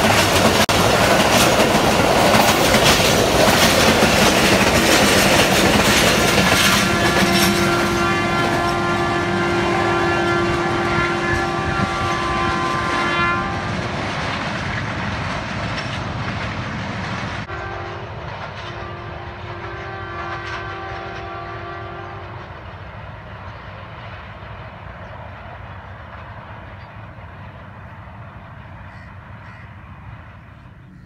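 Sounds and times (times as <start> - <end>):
train wheels rumbling on rails: 0.0 - 31.0
diesel locomotive horn: 4.4 - 14.2, 17.4 - 22.7.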